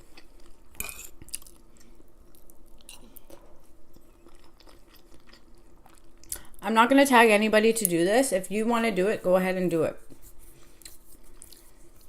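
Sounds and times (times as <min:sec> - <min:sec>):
person chewing food: 0:00.0 - 0:06.6, 0:10.2 - 0:12.0
faint steady hum: 0:00.0 - 0:12.0.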